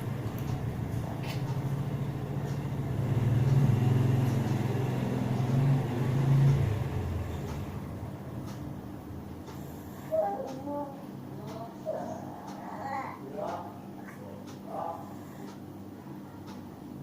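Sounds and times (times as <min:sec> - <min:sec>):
vehicle engine passing by: 0:00.8 - 0:08.2.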